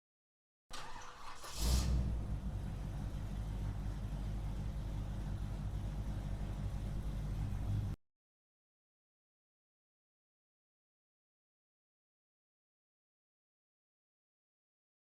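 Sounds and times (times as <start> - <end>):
car engine starting and idling: 0.7 - 8.0.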